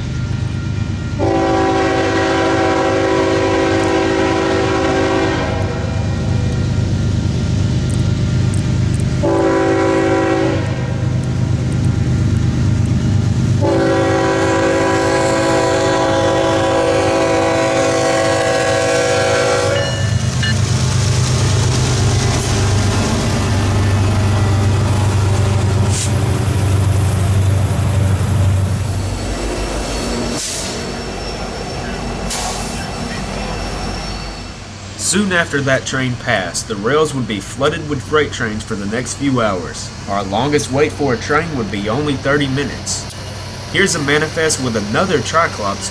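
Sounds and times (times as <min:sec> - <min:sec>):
diesel locomotives rumbling past: 0:00.0 - 0:45.9
locomotive air horn blasts: 0:01.2 - 0:06.4, 0:09.2 - 0:11.1, 0:13.6 - 0:20.3.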